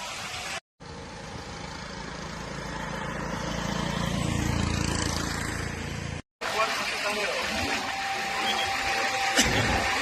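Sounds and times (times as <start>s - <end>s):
engine rumbling drone: 0.8s - 6.2s.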